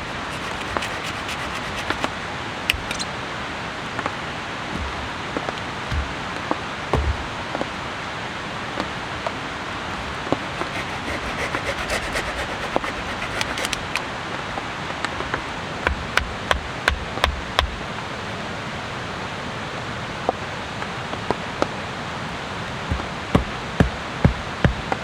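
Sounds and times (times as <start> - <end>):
sharp ticks and knocks: 2.7 - 3.1, 4.7 - 7.7, 9.9 - 14.0.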